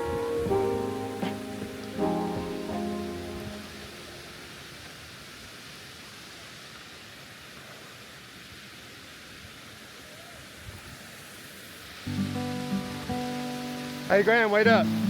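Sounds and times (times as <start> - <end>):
background music: 0.0 - 4.1, 12.1 - 15.0
rushing water of waterfall: 0.0 - 15.0.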